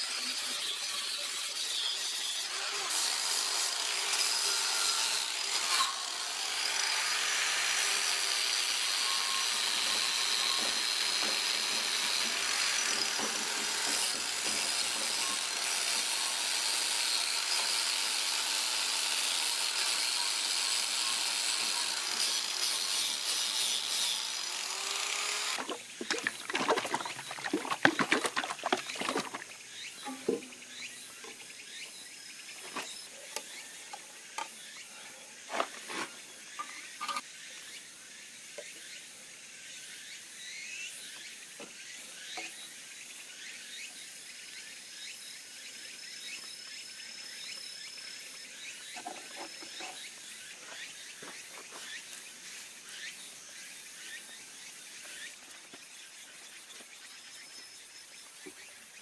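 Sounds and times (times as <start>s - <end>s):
power tool abrading a surface: 0.0s - 29.4s.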